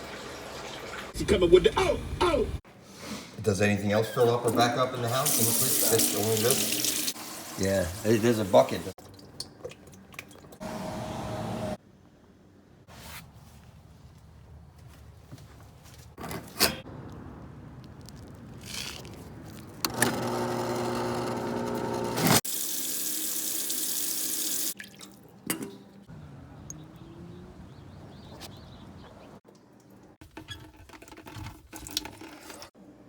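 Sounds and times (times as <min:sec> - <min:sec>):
water rushing from a tap: 0:05.2 - 0:08.9, 0:22.4 - 0:25.0.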